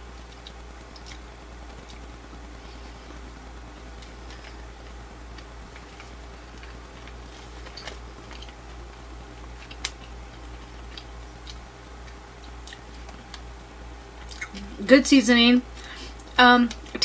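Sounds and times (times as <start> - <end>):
steady low hum: 0.0 - 17.0
person chewing with wet clicks: 0.1 - 2.1, 3.8 - 13.6, 14.2 - 14.7.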